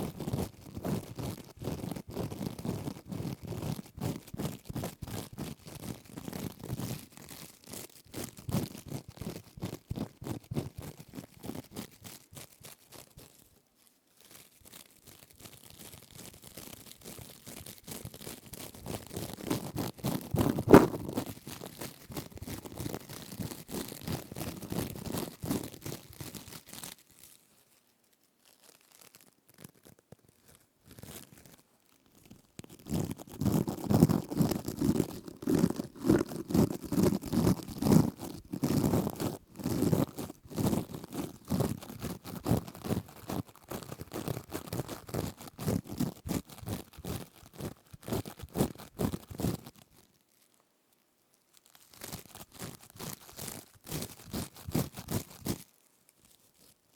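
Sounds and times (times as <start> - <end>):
plastic scourer crinkling: 11.2 - 50.6, 51.6 - 56.9.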